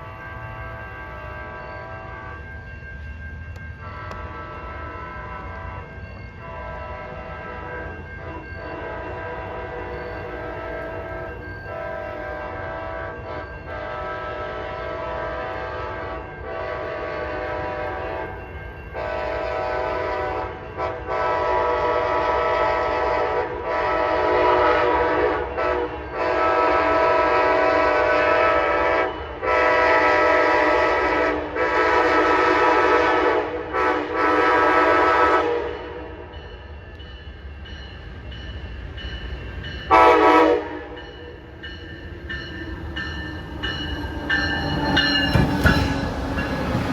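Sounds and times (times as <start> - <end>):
locomotive air horn blasts: 0.0 - 2.4, 3.8 - 18.3, 19.0 - 36.3, 39.9 - 41.1
low train rumble: 0.0 - 46.9.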